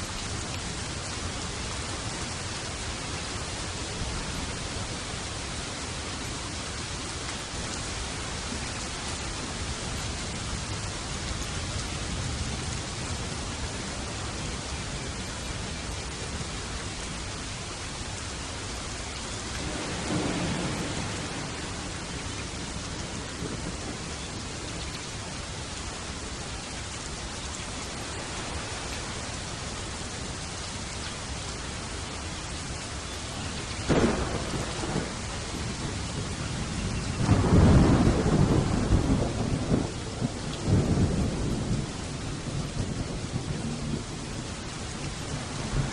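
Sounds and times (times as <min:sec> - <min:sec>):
heavy rain: 0:00.0 - 0:45.9
loud thunderclap: 0:19.6 - 0:21.6, 0:33.9 - 0:36.3, 0:37.2 - 0:41.8
thunder rumble: 0:19.6 - 0:24.2, 0:33.9 - 0:45.9.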